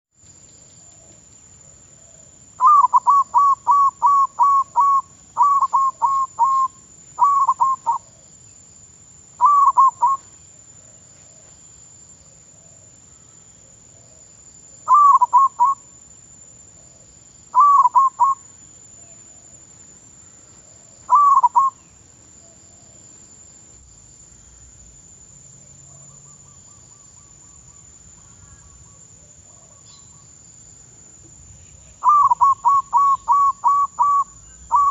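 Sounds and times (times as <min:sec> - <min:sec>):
dove cooing: 0:02.0 - 0:08.2, 0:09.4 - 0:10.3, 0:14.9 - 0:15.8, 0:17.6 - 0:18.4, 0:21.1 - 0:21.8, 0:32.0 - 0:34.9.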